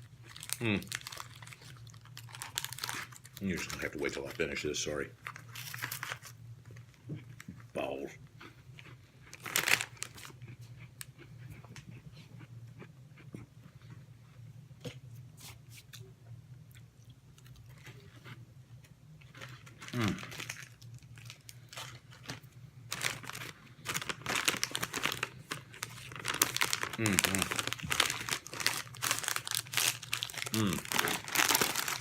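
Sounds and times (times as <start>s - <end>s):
snack wrapper crinkling and tearing: 0.2s - 4.6s, 5.2s - 7.0s, 8.8s - 11.3s, 19.2s - 32.0s.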